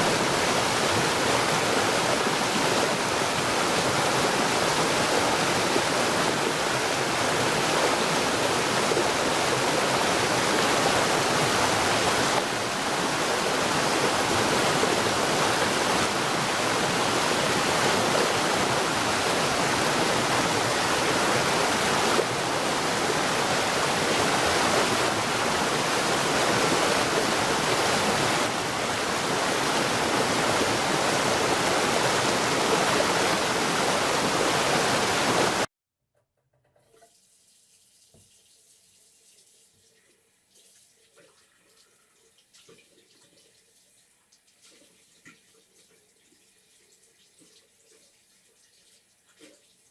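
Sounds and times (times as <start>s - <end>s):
water rushing: 0.0s - 35.7s.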